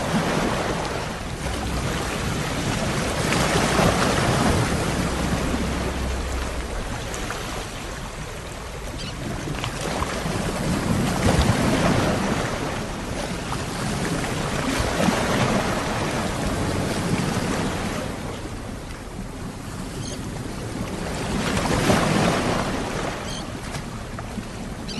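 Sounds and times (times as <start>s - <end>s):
ocean waves surging: 0.0s - 18.6s.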